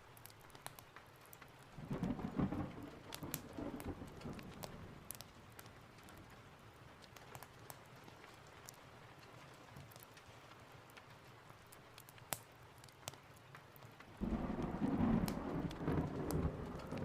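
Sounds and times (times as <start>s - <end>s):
sharp crackles: 0.0s - 17.0s
steady rain: 0.0s - 17.0s
thunder rumbling: 1.8s - 5.2s, 14.2s - 17.0s.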